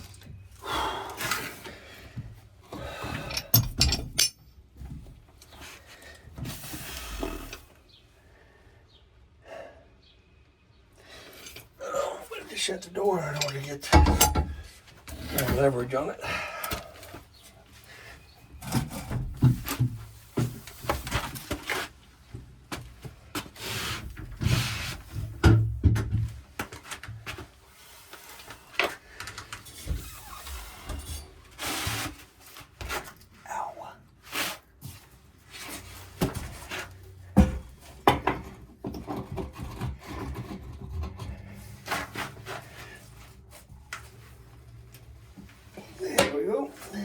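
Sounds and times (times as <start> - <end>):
tools knocking on plumbing: 13.9 - 14.7
rubbing and scraping: 38.4 - 46.9.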